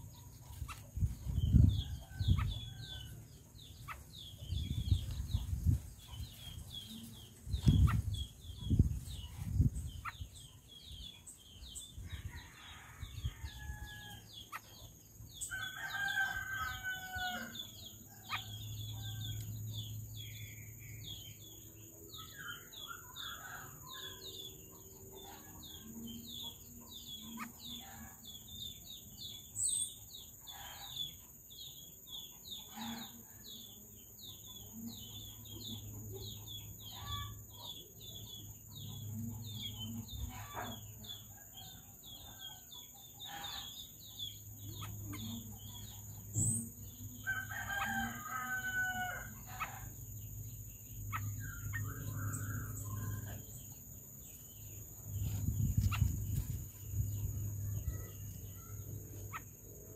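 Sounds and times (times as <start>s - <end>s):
rooster crowing: 15.5s - 17.6s, 47.2s - 49.4s.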